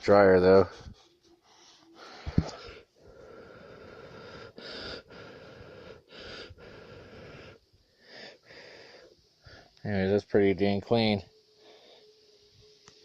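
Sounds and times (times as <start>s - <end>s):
person blowing long puffs: 1.9s - 7.6s.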